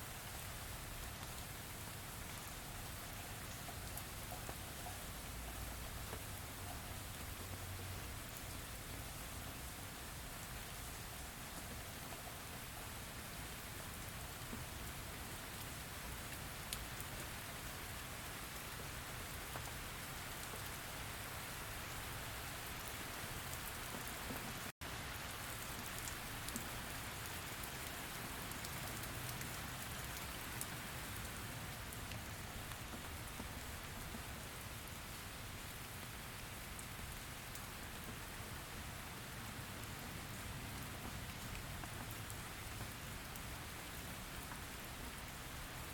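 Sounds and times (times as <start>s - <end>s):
rain falling on a surface: 0.0s - 45.9s.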